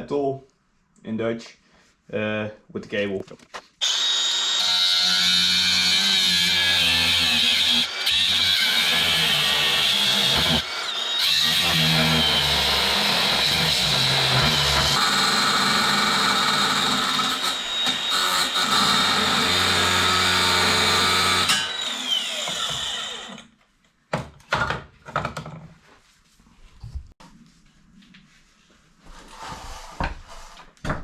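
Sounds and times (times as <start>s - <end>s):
angle grinder whining: 3.8s - 23.5s.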